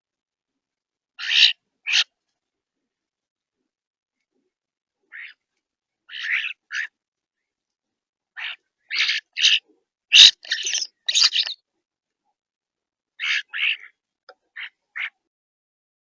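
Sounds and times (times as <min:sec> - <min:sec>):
birds calling harshly: 0:01.2 - 0:02.2, 0:05.1 - 0:05.5, 0:06.1 - 0:07.0, 0:08.4 - 0:11.6, 0:13.2 - 0:15.3.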